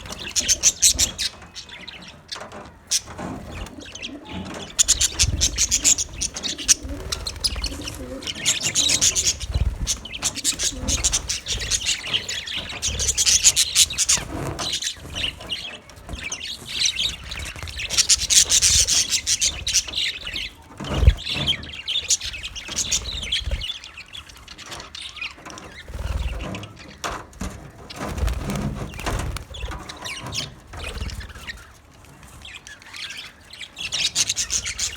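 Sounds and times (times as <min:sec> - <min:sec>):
rustling: 0:00.0 - 0:23.7
budgerigars chirping and chattering: 0:00.0 - 0:34.9.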